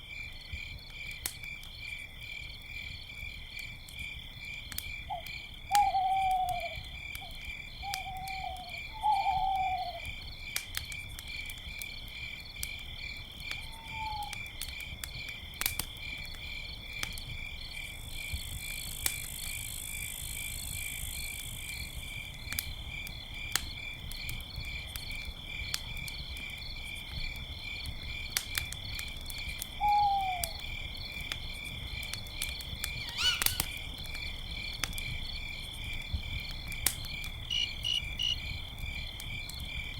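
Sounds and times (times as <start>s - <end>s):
campfire crackling: 0.0s - 39.9s
crickets chirping: 0.0s - 39.9s
owl hooting: 5.1s - 6.8s, 7.9s - 10.1s, 13.7s - 14.3s, 29.8s - 30.6s, 33.0s - 33.8s.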